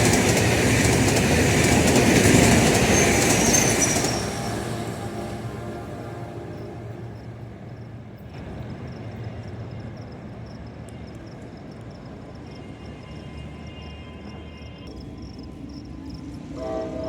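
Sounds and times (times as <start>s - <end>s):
diesel train rumbling: 0.0s - 17.0s
locomotive horn: 4.0s - 7.6s, 16.5s - 17.0s.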